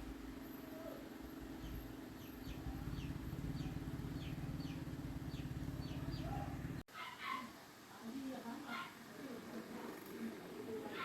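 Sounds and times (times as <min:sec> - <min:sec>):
low fluttering mechanical hum: 0:00.0 - 0:06.8.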